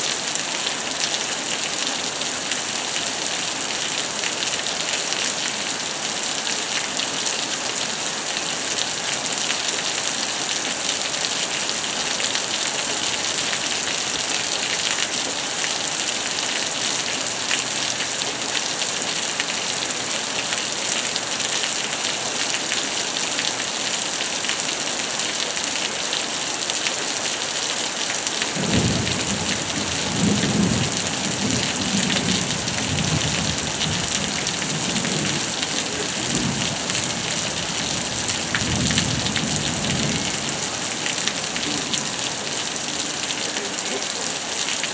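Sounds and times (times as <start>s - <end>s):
heavy rain hissing: 7.3s - 25.7s, 26.3s - 44.9s
thunder rumbling: 28.6s - 42.9s.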